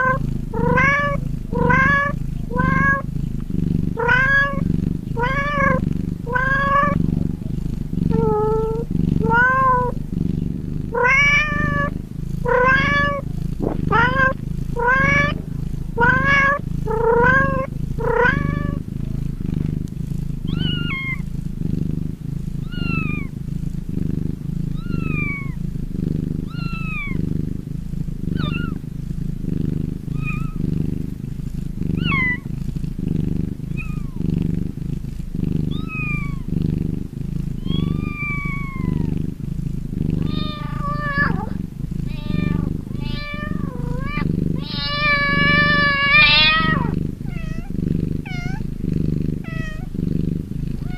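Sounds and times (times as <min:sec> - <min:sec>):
cat meowing: 0:00.0 - 0:03.1, 0:04.0 - 0:10.0, 0:10.9 - 0:15.4, 0:16.0 - 0:18.8, 0:20.5 - 0:21.2, 0:22.6 - 0:23.3, 0:24.7 - 0:25.6, 0:26.4 - 0:27.2, 0:28.3 - 0:28.8, 0:30.1 - 0:30.7, 0:31.9 - 0:32.5, 0:33.7 - 0:34.2, 0:35.7 - 0:36.5, 0:37.6 - 0:39.2, 0:40.2 - 0:48.7, 0:49.4 - 0:49.9
cat purring: 0:00.0 - 0:50.9.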